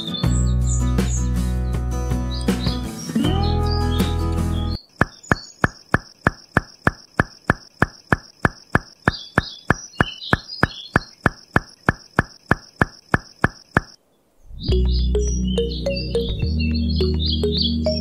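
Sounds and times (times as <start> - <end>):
faint chirps: 2.3 - 18.0
sharp ticks: 5.0 - 14.0.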